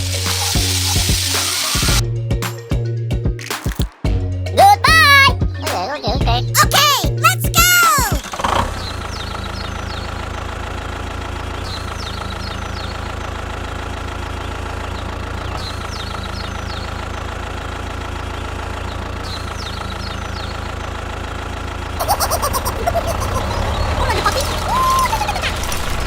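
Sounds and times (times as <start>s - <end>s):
bulldozer engine hum: 8.3s - 26.0s.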